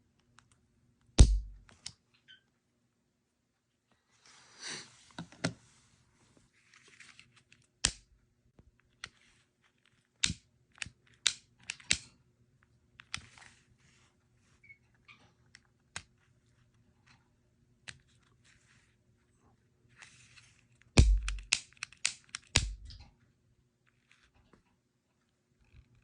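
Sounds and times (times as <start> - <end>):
faint electrical hum: 0.0 - 26.0.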